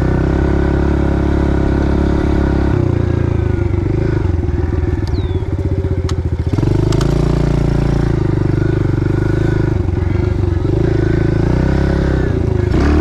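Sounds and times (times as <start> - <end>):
small motorcycle engine: 0.0 - 13.0
sharp clicks: 5.0 - 5.3, 6.0 - 7.4.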